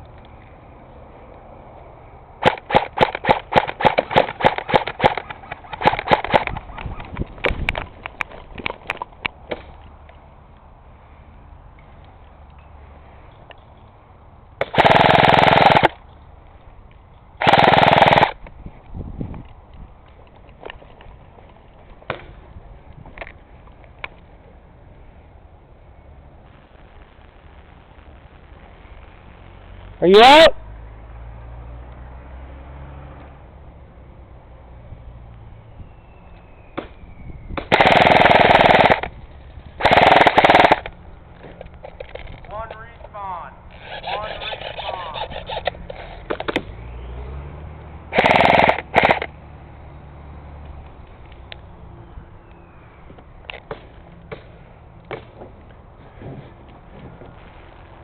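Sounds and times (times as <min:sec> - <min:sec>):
airsoft gun full-auto bursts: 0:02.4 - 0:07.0, 0:14.6 - 0:16.0, 0:17.4 - 0:18.4, 0:37.7 - 0:39.1, 0:39.8 - 0:40.9, 0:43.8 - 0:45.8, 0:48.1 - 0:49.3.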